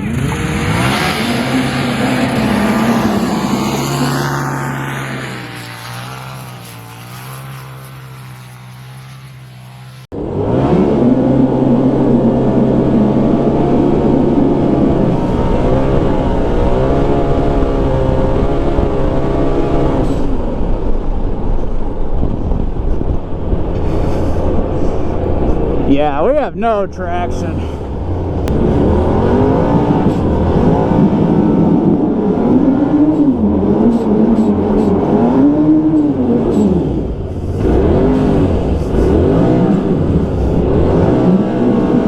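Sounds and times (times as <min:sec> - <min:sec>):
loud engine at high revs: 0:00.0 - 0:20.7, 0:23.8 - 0:42.0
rough rushing noise: 0:14.1 - 0:42.0.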